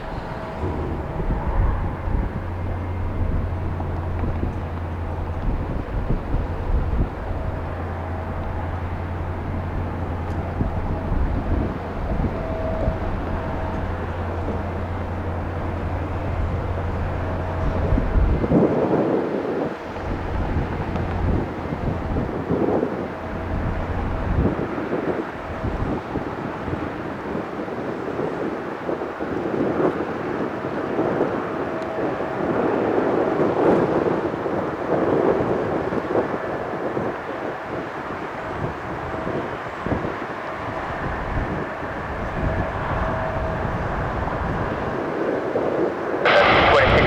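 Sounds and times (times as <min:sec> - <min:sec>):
jet engines rumbling: 0:00.0 - 0:47.0
jet engine rushing: 0:46.2 - 0:47.0.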